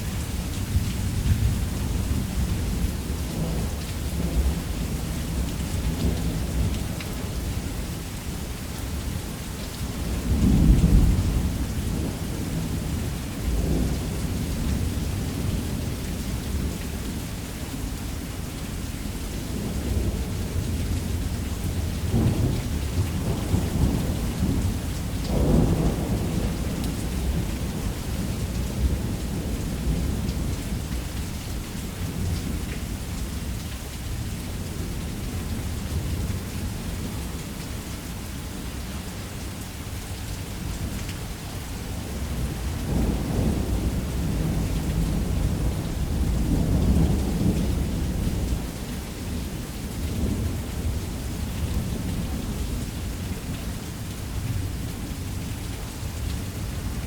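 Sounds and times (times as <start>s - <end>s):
heavy rain on a roof: 0.0s - 57.0s
rolling thunder: 22.0s - 30.8s, 42.0s - 51.0s.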